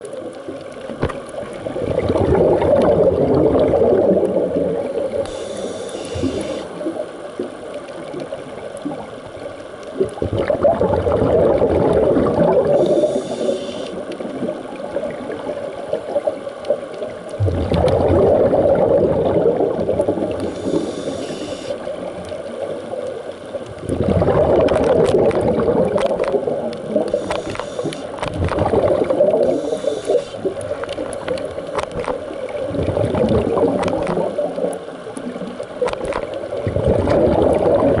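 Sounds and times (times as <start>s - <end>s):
bubbling exhaled air underwater: 0.0s - 38.0s
soft hiss of inhaled air: 5.2s - 7.0s, 12.7s - 14.2s, 20.3s - 21.9s, 27.0s - 28.2s, 29.4s - 30.6s.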